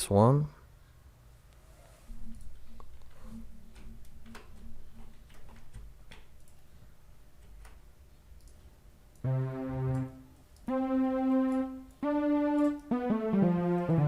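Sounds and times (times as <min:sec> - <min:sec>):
faint clicking: 0:08.4 - 0:09.3
synthesizer lead held notes: 0:09.2 - 0:14.0.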